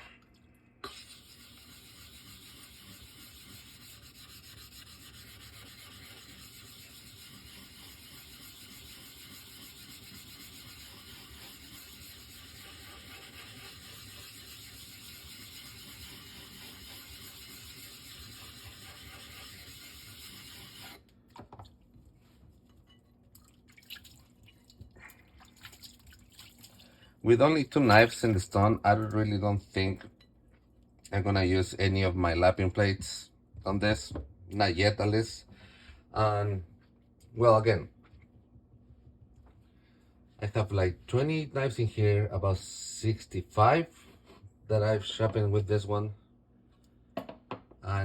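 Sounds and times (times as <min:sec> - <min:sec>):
whetstone rubbing with water: 0:00.8 - 0:21.0
water dripping: 0:23.3 - 0:26.9.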